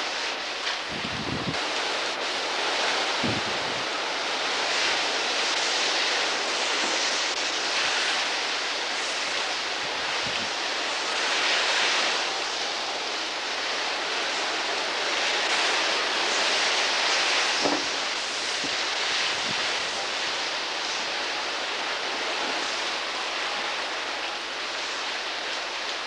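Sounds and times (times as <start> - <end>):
strong wind on microphone: 0.8 - 5.1, 9.8 - 10.6, 17.6 - 20.0.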